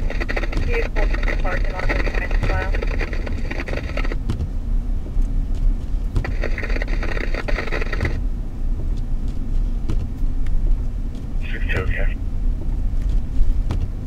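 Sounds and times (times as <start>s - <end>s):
scanner radio transmission: 0.0s - 4.2s, 6.2s - 8.2s, 11.4s - 12.2s
car engine and tyres rumbling: 0.0s - 14.0s.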